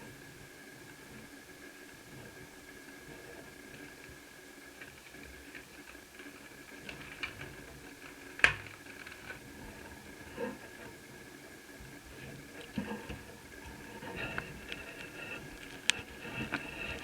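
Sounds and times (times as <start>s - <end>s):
clicks from handling fan parts: 4.8s - 11.0s, 12.5s - 17.0s.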